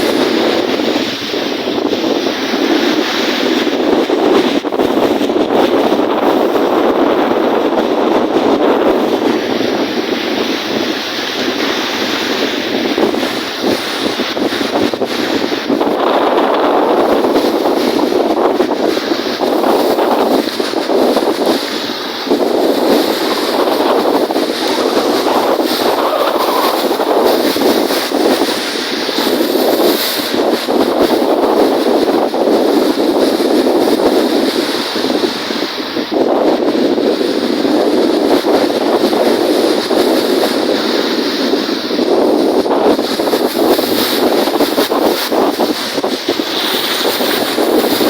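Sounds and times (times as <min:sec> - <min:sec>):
waves washing on lake: 0:00.0 - 0:48.0
wind buffeting microphone: 0:00.0 - 0:48.0.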